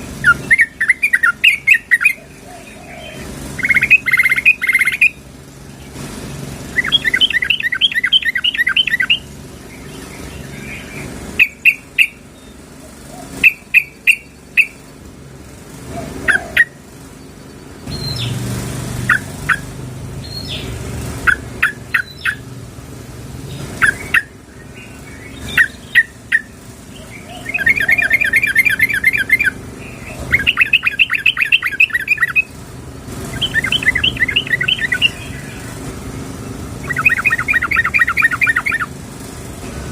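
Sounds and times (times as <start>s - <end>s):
bird chattering trills: 0.0s - 22.6s, 23.4s - 39.5s
bird single chirps: 16.3s - 18.4s, 23.8s - 32.6s, 33.3s - 35.7s.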